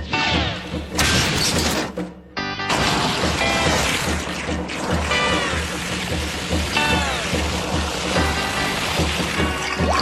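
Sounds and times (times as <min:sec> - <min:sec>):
cartoon music: 0:08.2 - 0:10.0.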